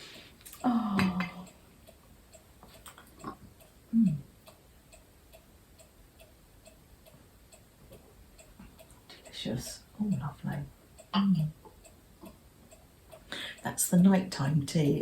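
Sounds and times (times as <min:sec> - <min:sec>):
faint steady ticking: 0:00.0 - 0:15.0
low voice hum: 0:00.6 - 0:01.5, 0:03.9 - 0:04.3.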